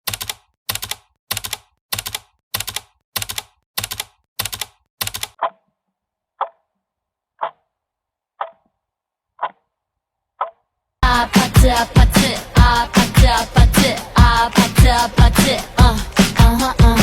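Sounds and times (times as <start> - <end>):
fast keyboard-like clicking: 0.0 - 5.4.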